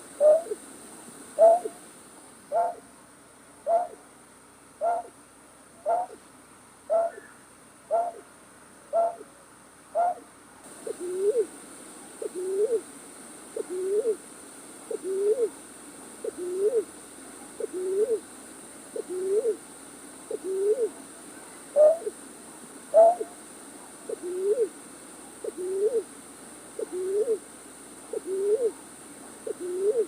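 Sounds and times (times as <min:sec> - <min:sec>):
faint steady high hiss: 0:00.0 - 0:30.0
low hooting bird call: 0:00.2 - 0:00.6, 0:01.4 - 0:01.8, 0:02.5 - 0:02.8, 0:03.7 - 0:04.0, 0:04.8 - 0:05.1, 0:05.8 - 0:06.2, 0:06.9 - 0:08.2, 0:08.9 - 0:09.3, 0:21.8 - 0:22.1, 0:22.9 - 0:23.4, 0:28.1 - 0:28.8.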